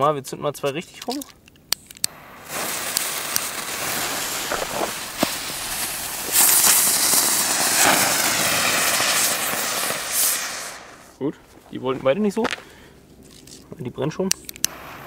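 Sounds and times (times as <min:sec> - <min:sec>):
sharp crack: 0:01.0 - 0:11.2
spinner fireworks hissing: 0:02.1 - 0:11.2, 0:14.7 - 0:15.0.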